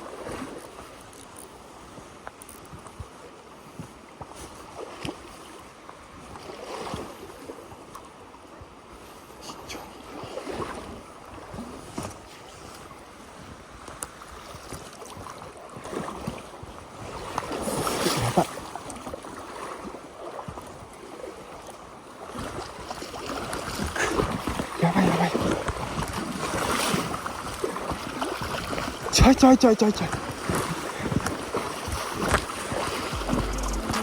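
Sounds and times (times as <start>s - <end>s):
stream water rushing: 22.5s - 34.0s
sudden sharp sounds: 33.2s - 34.0s.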